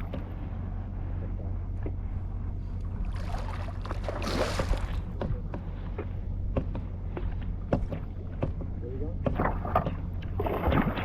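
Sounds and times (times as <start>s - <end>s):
wind rumble on microphone: 0.0s - 11.0s
water rushing: 3.0s - 5.2s.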